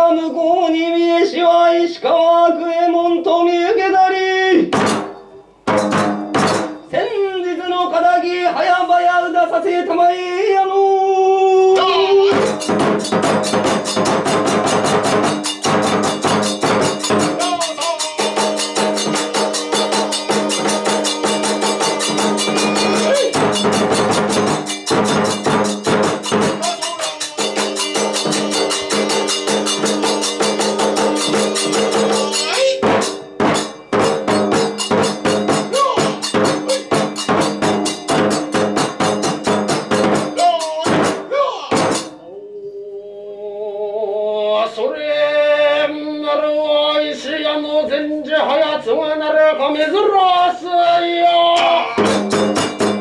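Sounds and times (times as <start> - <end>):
fast dense percussion rhythm: 4.7 - 7.1, 11.8 - 42.2, 51.6 - 53.0
steady held tones: 4.7 - 8.9, 11.6 - 43.0.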